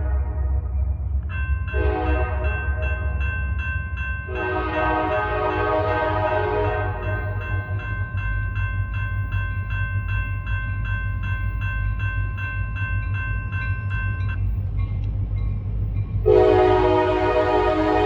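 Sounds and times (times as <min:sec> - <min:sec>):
diesel locomotives rumbling past: 0:00.0 - 0:18.0
loud multi-note air horn: 0:04.3 - 0:07.0, 0:16.3 - 0:18.0
bell ringing: 0:06.9 - 0:15.0.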